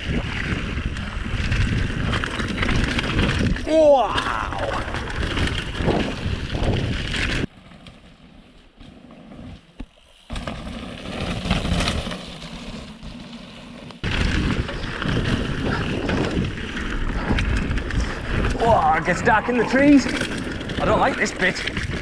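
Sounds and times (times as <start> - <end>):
wind buffeting microphone: 0.0 - 7.5, 14.0 - 22.0
bike tyres rattling on dirt and rock: 0.0 - 22.0.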